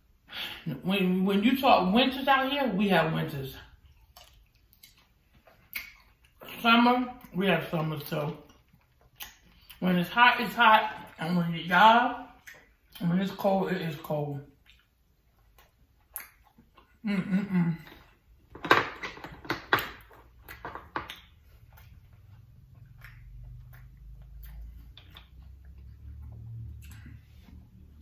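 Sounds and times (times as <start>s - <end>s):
low background hum: 0.0s - 28.0s
chewing: 3.7s - 9.8s, 14.5s - 17.0s, 20.0s - 28.0s.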